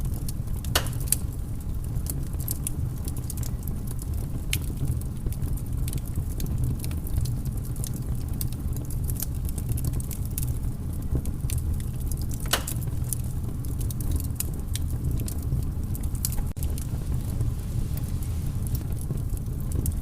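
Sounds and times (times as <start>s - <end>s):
low fire rumble: 0.0s - 20.0s
wood fire crackling: 0.0s - 20.0s.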